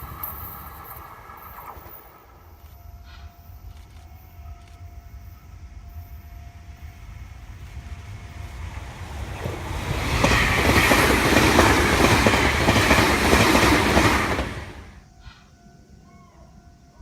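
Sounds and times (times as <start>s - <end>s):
train wheels clattering over rail joints: 8.1s - 15.0s.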